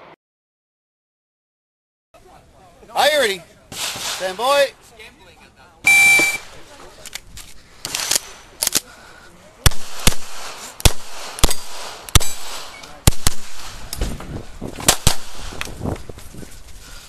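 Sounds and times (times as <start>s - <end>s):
pistol shots: 7.9s - 8.8s, 9.6s - 14.0s, 14.8s - 15.7s.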